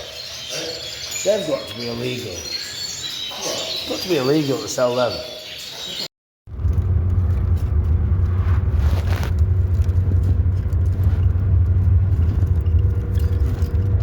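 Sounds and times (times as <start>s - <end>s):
car driving rumble: 6.5s - 14.0s.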